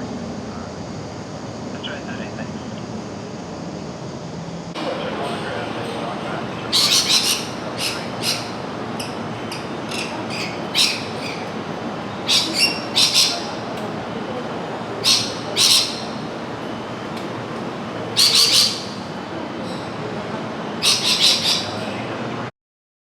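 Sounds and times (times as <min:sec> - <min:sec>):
steady background hiss: 0:00.0 - 0:22.5
high-pitched bird squawks: 0:06.7 - 0:11.6, 0:12.2 - 0:13.6, 0:15.0 - 0:16.2, 0:18.2 - 0:19.1, 0:20.8 - 0:21.9.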